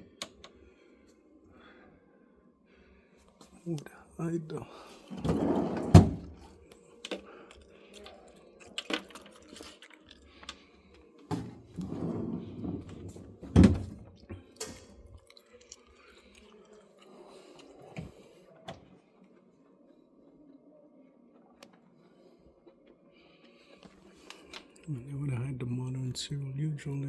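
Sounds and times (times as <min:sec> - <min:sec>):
plastic drawers sliding: 0:05.1 - 0:06.5, 0:11.3 - 0:14.0.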